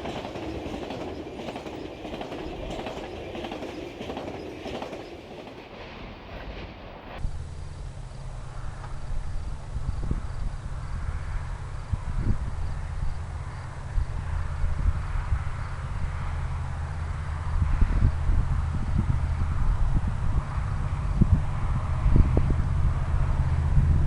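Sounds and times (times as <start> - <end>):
train wheels clickety-clack: 0.0 - 7.2
train low rumble: 0.0 - 24.0.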